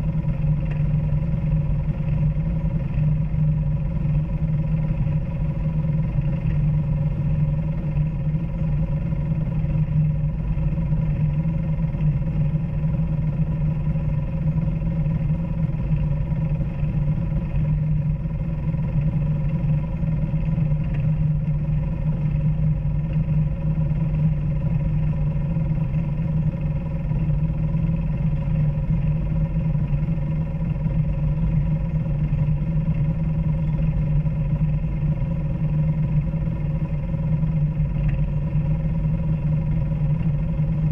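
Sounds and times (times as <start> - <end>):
off-road vehicle engine running: 0.0 - 40.9.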